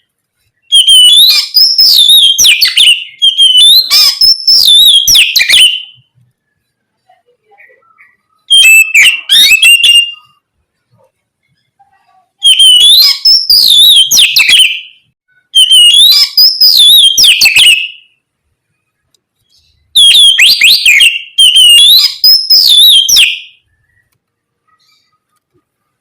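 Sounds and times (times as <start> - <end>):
bird whistling and rasping: 0.7 - 6.0, 8.0 - 10.4, 12.4 - 15.0, 15.6 - 18.1, 20.0 - 23.6.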